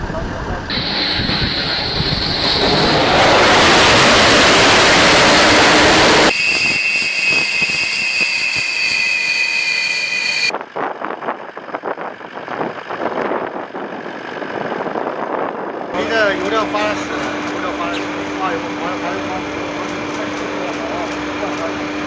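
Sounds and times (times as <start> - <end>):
uneven engine noise: 0.0 - 7.1
high-pitched turbine whine: 0.3 - 10.6
jet blast rushing: 0.6 - 10.5.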